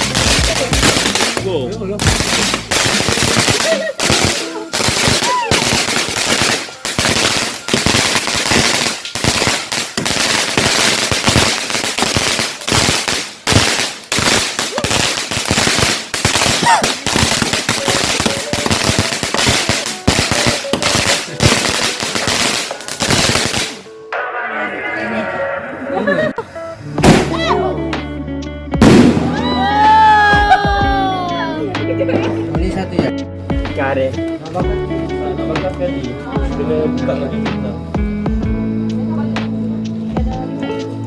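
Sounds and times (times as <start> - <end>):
firecrackers banging: 0.0 - 24.3, 27.0 - 27.5, 28.8 - 30.6.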